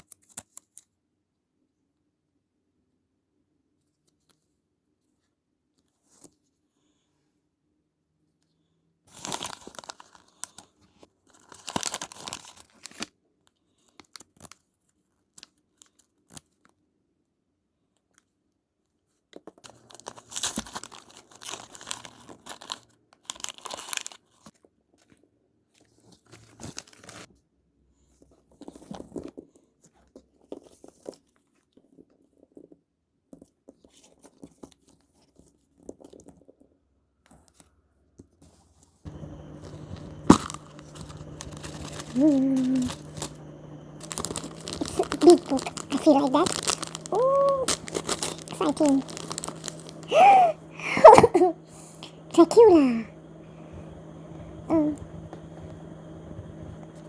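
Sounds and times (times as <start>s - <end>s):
plastic packaging rustling: 11.4s - 13.0s, 39.1s - 53.0s
plastic packaging tearing: 11.4s - 13.0s, 39.1s - 52.7s.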